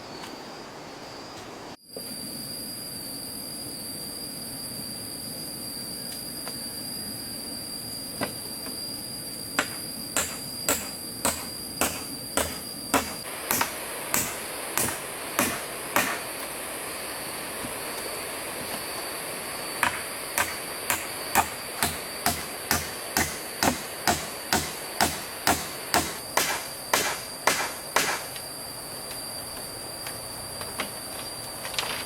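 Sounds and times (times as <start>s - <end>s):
high insect buzz: 0.0s - 32.0s
hand tool striking wood: 9.6s - 16.2s, 19.8s - 28.4s.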